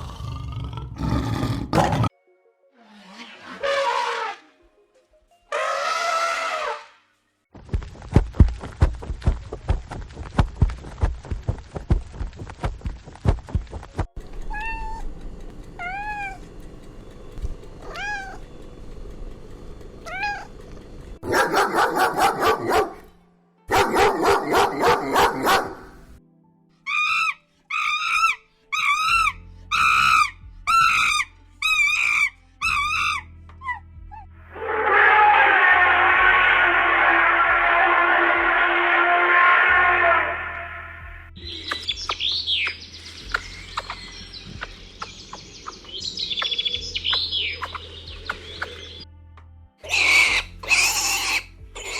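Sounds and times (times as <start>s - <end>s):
cats meowing: 14.4s - 15.1s, 15.8s - 16.5s, 17.8s - 18.5s
loud rough animal calls: 34.6s - 40.8s, 49.8s - 51.9s.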